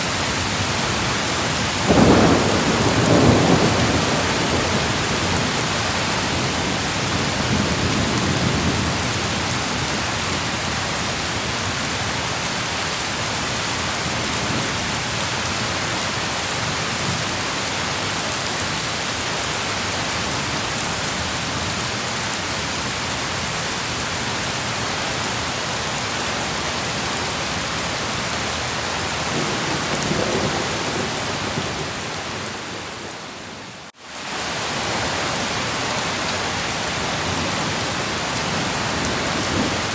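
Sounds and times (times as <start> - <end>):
rain hiss: 0.0 - 39.9
low thunder rumbling: 1.8 - 9.4, 29.1 - 33.8.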